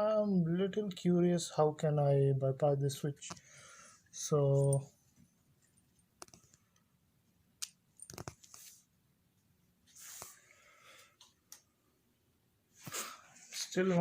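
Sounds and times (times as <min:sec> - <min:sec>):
short hiss: 0:12.8 - 0:13.8.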